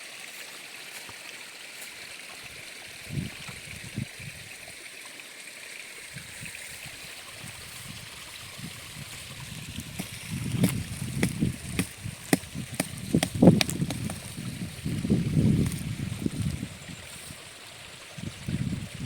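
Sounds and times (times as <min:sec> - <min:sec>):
steady outdoor hiss: 0:00.0 - 0:19.0
soft low thuds: 0:09.8 - 0:15.9.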